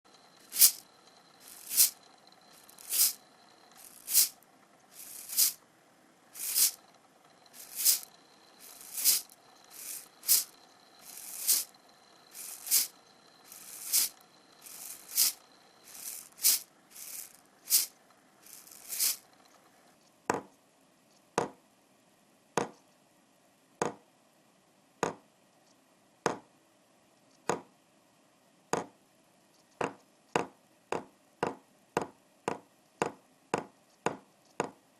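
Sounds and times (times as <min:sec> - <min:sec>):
hand rattle shaken: 0:00.2 - 0:05.6, 0:06.4 - 0:06.9, 0:07.5 - 0:19.3.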